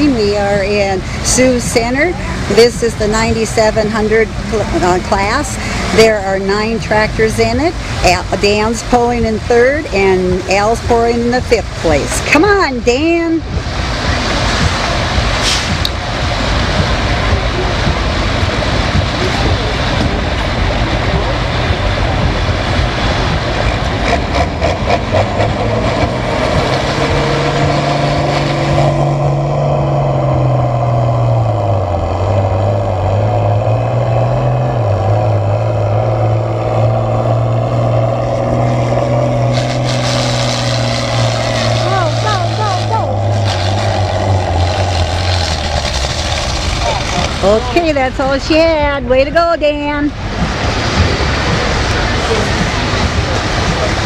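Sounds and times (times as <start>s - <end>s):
tractor engine under load: 13.4s - 49.2s.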